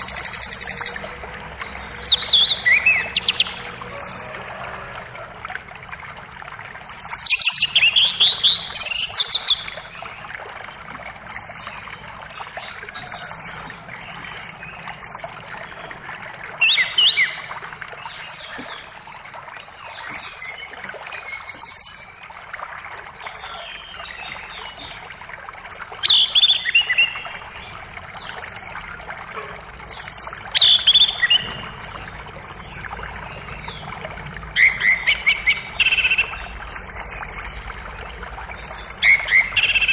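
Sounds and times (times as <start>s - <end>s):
songbirds chirping: 0.0s - 5.6s, 6.6s - 22.5s, 23.4s - 39.9s
creek rushing: 0.0s - 39.9s.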